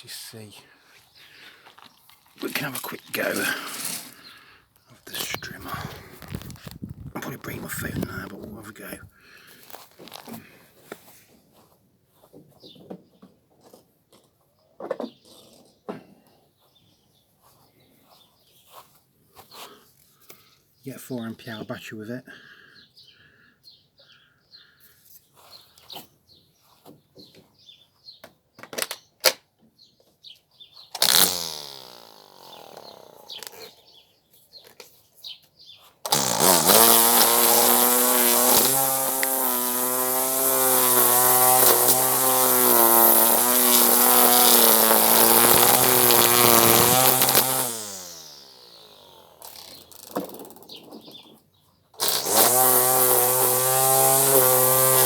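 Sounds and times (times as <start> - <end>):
electric strimmer running: 2.5 - 4.4, 5.1 - 8.9, 31.0 - 34.0, 36.1 - 50.6, 52.0 - 55.0.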